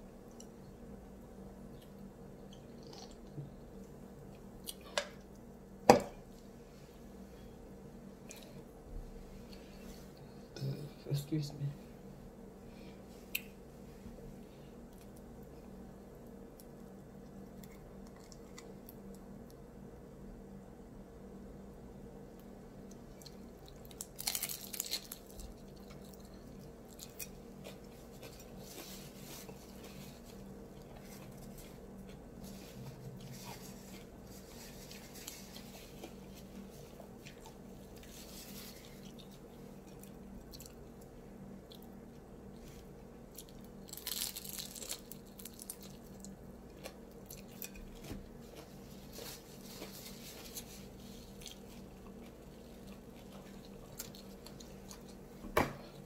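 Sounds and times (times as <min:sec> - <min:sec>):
person chewing and crunching food: 0:01.6 - 0:05.5, 0:16.2 - 0:19.6, 0:22.4 - 0:56.0.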